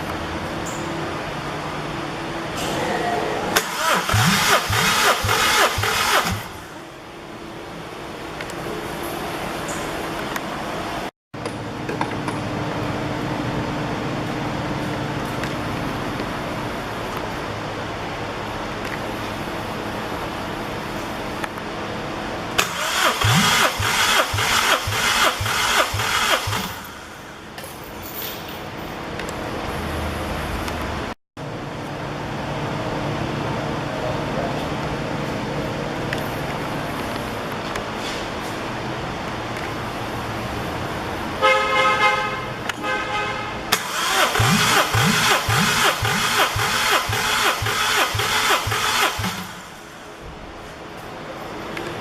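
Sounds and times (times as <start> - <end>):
engine cranking by starter motor: 3.6 - 6.8, 22.6 - 27.3, 43.7 - 50.2.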